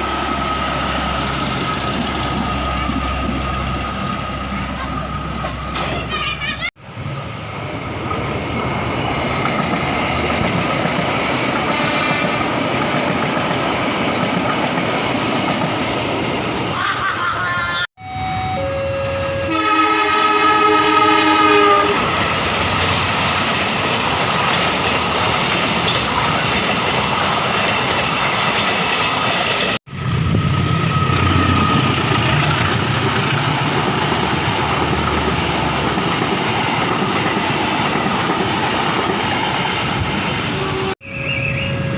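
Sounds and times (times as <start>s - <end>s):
train rumbling on rails: 0.0s - 41.9s
multi-note train horn: 11.6s - 12.4s, 18.0s - 22.1s, 40.5s - 41.9s.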